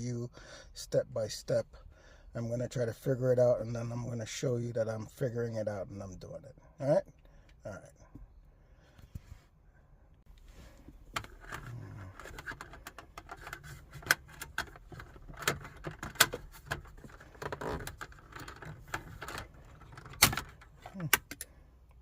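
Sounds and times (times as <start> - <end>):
plastic trim clicking and rattling: 11.1 - 21.5.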